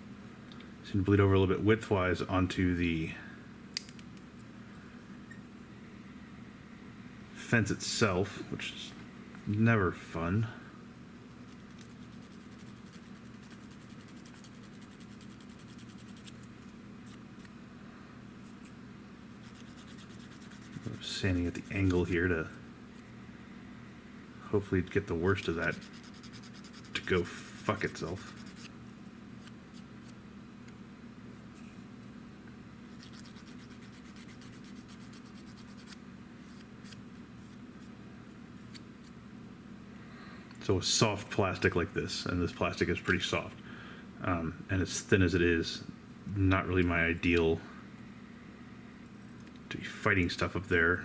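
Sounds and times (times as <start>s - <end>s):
low steady hum: 0.0s - 51.0s
sanding plastic part: 11.3s - 17.2s, 19.4s - 22.6s, 24.9s - 30.2s, 32.9s - 37.0s.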